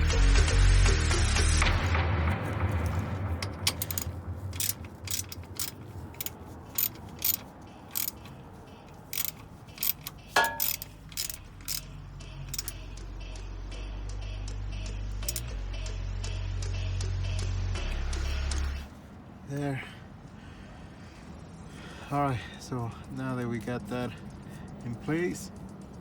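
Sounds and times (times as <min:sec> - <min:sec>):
ratchet clicking: 0:02.8 - 0:15.6
metal tool clink: 0:03.4 - 0:11.9, 0:12.5 - 0:12.8, 0:15.2 - 0:15.5.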